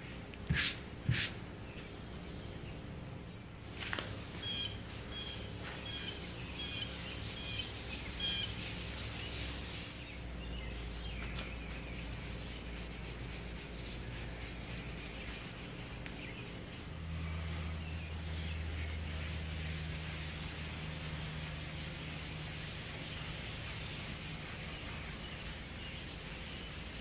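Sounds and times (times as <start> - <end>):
steady low hum: 0.0 - 27.0
small bird chirping: 4.4 - 20.4.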